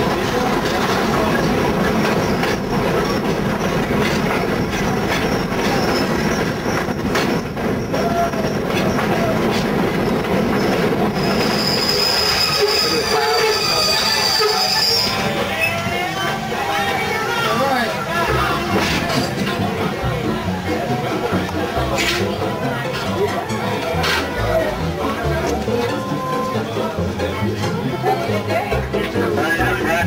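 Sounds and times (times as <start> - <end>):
wheels clicking over rail joints: 0.0 - 12.4
train rumble: 0.0 - 30.0
high wheel squeal: 4.6 - 9.4, 10.5 - 16.6.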